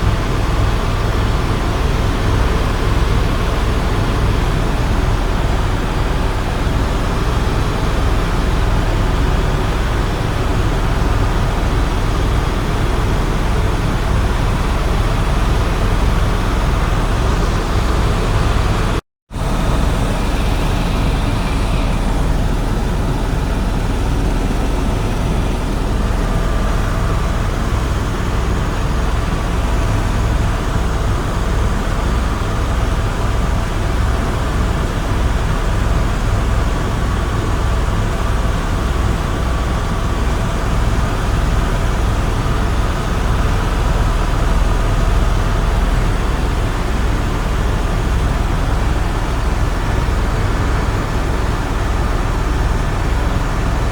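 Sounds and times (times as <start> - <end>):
helicopter rotor drone: 0.0 - 53.9.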